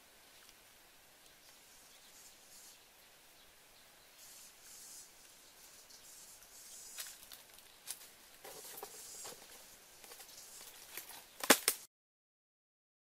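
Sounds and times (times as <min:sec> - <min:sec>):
bare feet on dry leaves: 0:06.7 - 0:11.9.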